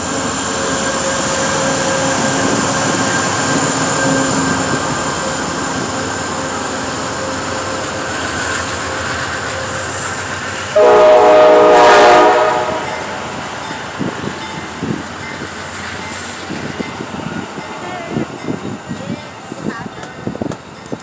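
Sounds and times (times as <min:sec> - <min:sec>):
diesel locomotive running: 0:00.0 - 0:21.0
train horn blast: 0:10.7 - 0:13.1.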